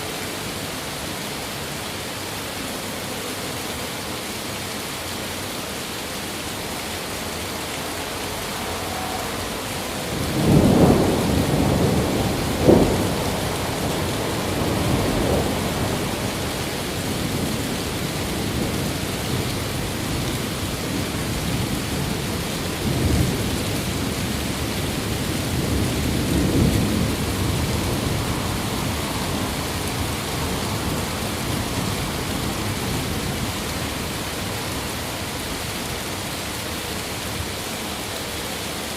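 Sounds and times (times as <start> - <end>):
steady rain: 0.0 - 38.9
thunder rumbling: 7.1 - 35.7
thunder crack: 8.2 - 16.4.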